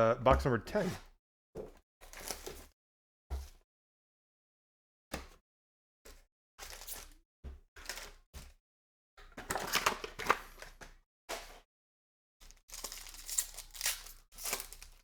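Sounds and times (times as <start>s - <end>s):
card wrappers crinkling and tearing: 12.7s - 15.0s.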